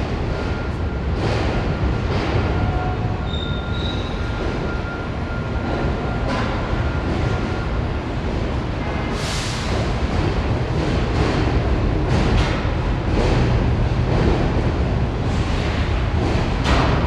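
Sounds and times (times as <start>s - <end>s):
subway train rumbling: 0.0s - 17.0s
high wheel squeal: 3.1s - 5.7s.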